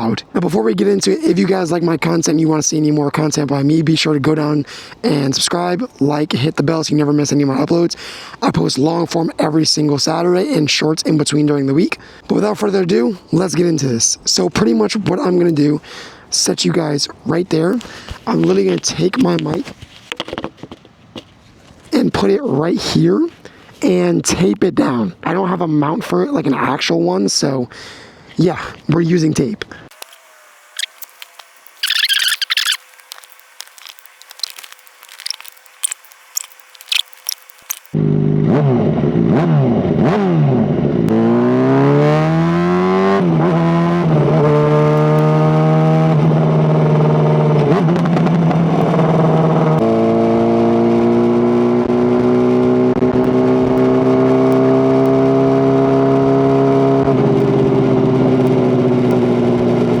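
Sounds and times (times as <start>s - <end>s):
tape tearing rustle: 17.8s - 22.0s, 30.0s - 38.0s
motorcycle engine revving: 37.9s - 60.0s.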